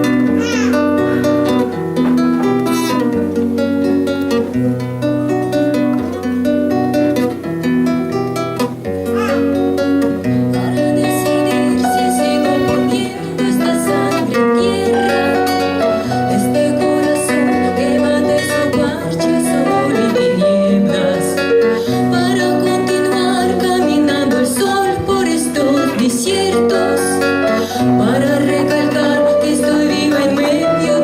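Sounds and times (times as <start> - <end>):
person singing: 0.0 - 1.6, 10.3 - 31.0
plucked string melody: 0.0 - 31.0.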